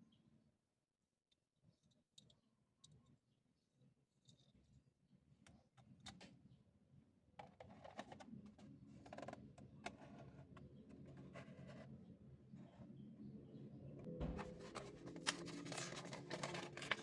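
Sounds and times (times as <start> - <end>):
packaging scratching and rustling: 14.4 - 17.0.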